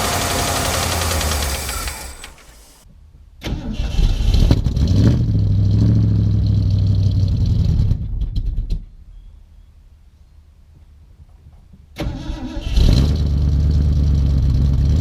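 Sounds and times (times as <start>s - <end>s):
engine cranking and running unevenly: 0.0s - 2.8s
engine sputtering pops: 0.0s - 2.8s.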